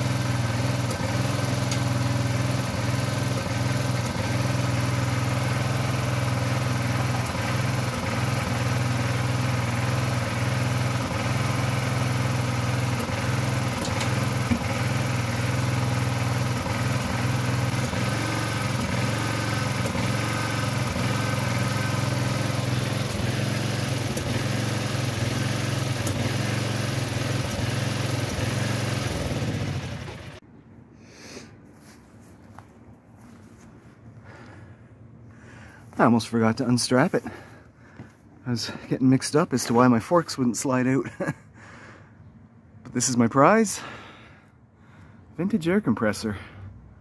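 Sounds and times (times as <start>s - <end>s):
small tractor engine running: 0.0s - 30.4s, 35.4s - 40.2s.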